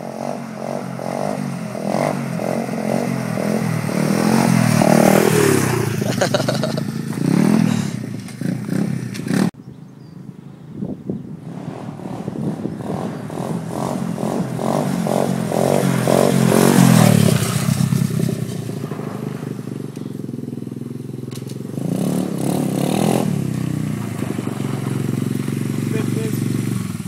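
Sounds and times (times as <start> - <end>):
pit bike engine revving: 0.0 - 10.4, 11.3 - 27.0.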